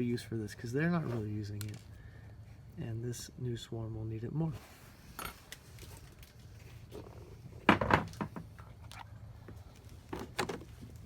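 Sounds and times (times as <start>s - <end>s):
clunks and rattles of gear: 5.2s - 11.0s.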